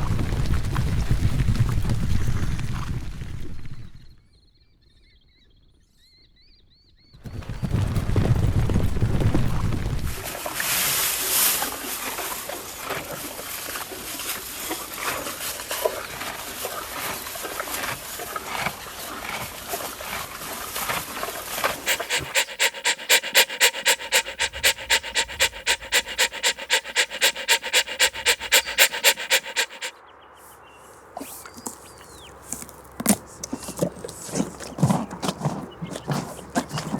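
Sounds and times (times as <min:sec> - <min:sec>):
animal panting rapidly: 0:21.8 - 0:29.9.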